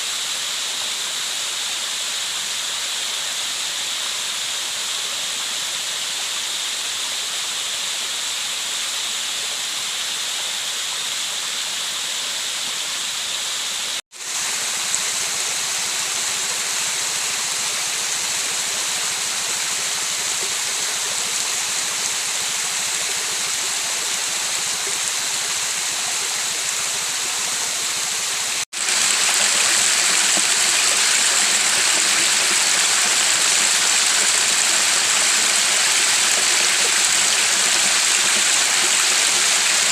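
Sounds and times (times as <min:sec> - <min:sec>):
river water flowing: 0:10.6 - 0:39.9.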